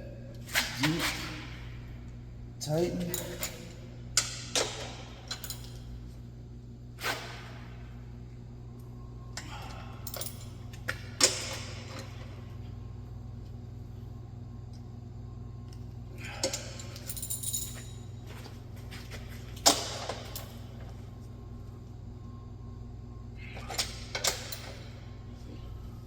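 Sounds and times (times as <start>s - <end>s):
low hum: 0.0s - 26.0s
metal tools clinking: 3.0s - 4.3s, 16.5s - 18.5s.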